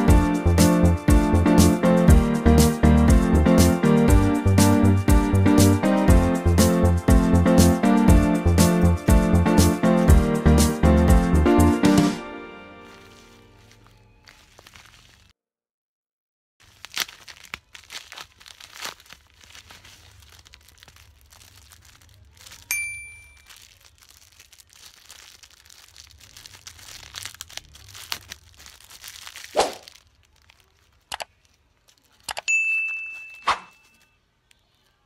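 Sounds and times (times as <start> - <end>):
plastic packaging crinkling: 12.8 - 15.3, 16.6 - 35.0.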